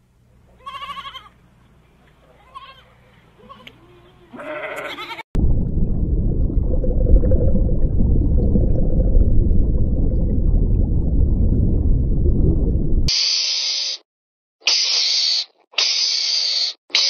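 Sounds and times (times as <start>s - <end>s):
sheep bleating: 0.6s - 1.3s, 2.4s - 5.2s
faint hum: 5.4s - 13.1s
loud low rumbling: 5.4s - 13.1s.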